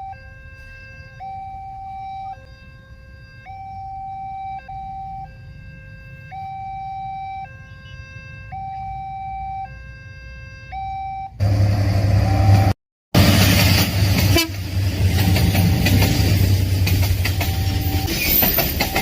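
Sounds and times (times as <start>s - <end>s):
two-tone crossing alarm: 0.0s - 12.8s, 14.3s - 19.0s
train rumble: 11.4s - 19.0s.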